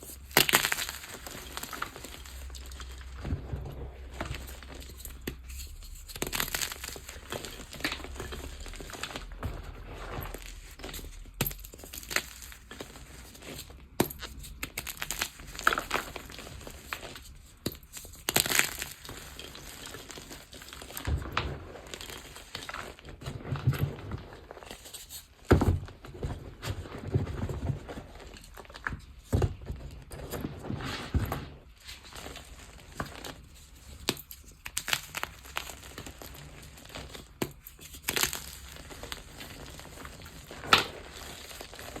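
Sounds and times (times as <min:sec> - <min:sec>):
chalk blocks crushed by hand: 0:00.2 - 0:02.7.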